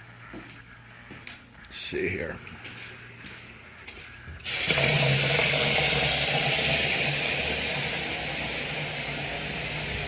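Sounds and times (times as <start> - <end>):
tap water running with hiss: 4.4 - 10.0.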